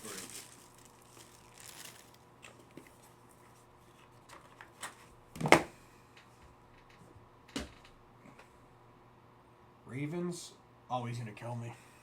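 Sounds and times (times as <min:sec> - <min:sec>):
trading cards and wrappers rustling: 0:00.0 - 0:05.1.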